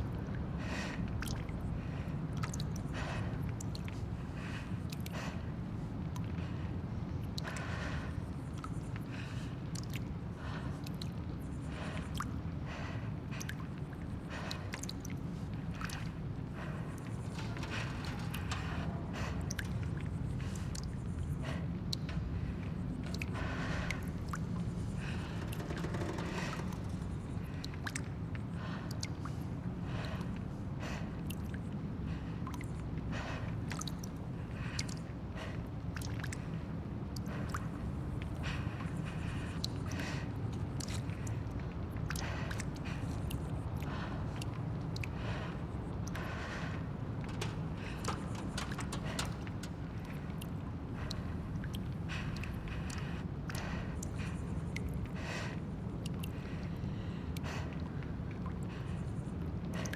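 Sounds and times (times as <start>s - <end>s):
steady low rumble: 0.0s - 35.6s
small clicks and ticks: 13.4s - 29.3s, 46.0s - 55.1s.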